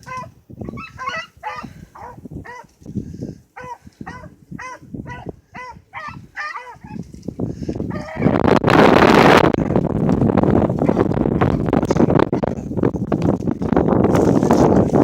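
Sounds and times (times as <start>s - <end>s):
beagles baying: 0.0s - 2.7s, 3.6s - 7.0s, 7.9s - 8.4s
wind rumble on microphone: 0.0s - 15.0s.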